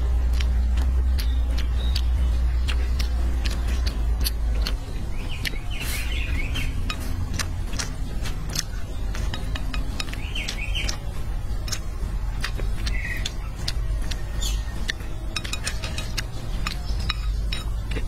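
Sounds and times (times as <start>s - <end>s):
bird chirping: 0.0s - 18.0s
chopsticks in bowl: 0.0s - 18.0s
wet chewing mouth sounds: 0.0s - 18.0s.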